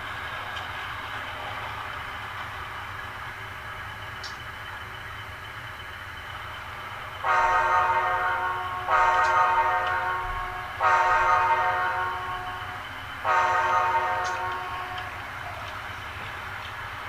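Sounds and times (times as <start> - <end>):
model locomotive humming: 0.0 - 17.0
locomotive horn blasts: 7.2 - 15.2.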